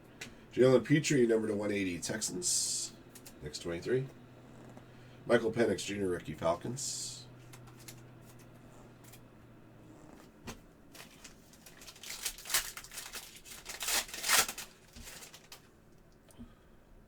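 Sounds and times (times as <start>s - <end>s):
card packs tearing and crinkling: 7.4s - 8.5s, 10.9s - 15.7s
scrapes and crackles: 7.4s - 9.3s, 9.9s - 15.7s.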